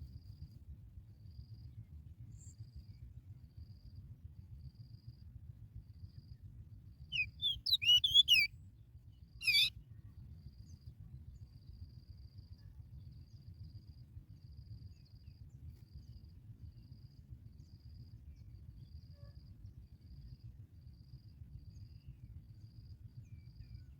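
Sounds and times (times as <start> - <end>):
bird sweeping chirps: 7.2 - 8.5, 9.4 - 9.7
faint cricket chirping: 7.2 - 8.5, 9.4 - 9.7.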